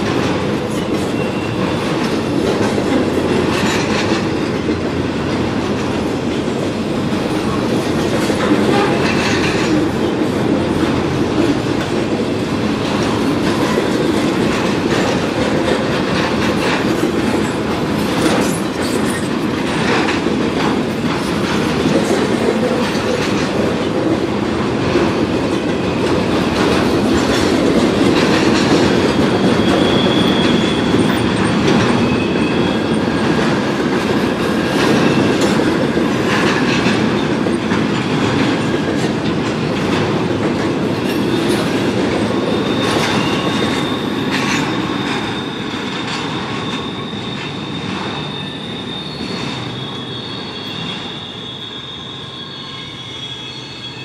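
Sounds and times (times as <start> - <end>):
freight train wheels clattering: 0.0 - 51.3
high wheel squeal: 0.6 - 2.3, 28.2 - 35.6, 41.0 - 54.0.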